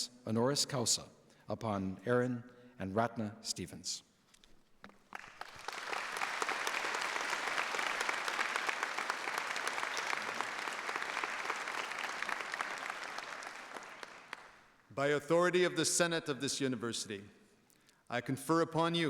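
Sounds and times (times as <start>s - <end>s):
audience applauding: 5.0s - 14.8s.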